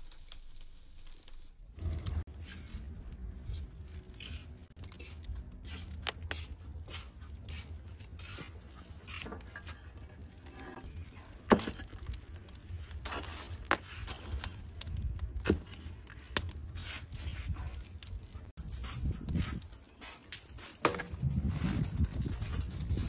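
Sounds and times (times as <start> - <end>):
steady low rumble: 1.7 - 5.9.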